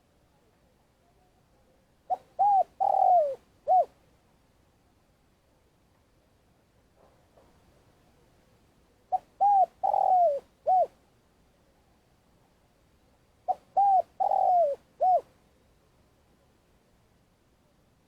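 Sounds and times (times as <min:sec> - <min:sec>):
dove cooing: 0:02.1 - 0:04.0, 0:09.1 - 0:11.0, 0:13.5 - 0:15.3.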